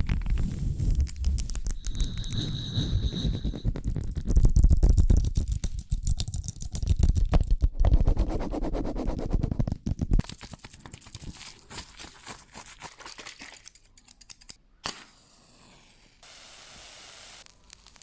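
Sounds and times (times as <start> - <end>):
deep low rumble: 0.0 - 6.2
crackling and rapid clicking: 0.0 - 8.4, 9.0 - 11.3, 17.4 - 18.0.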